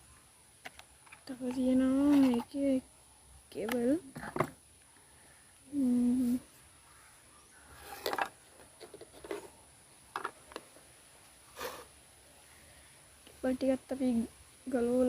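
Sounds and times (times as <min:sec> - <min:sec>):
person humming: 0:05.7 - 0:06.4.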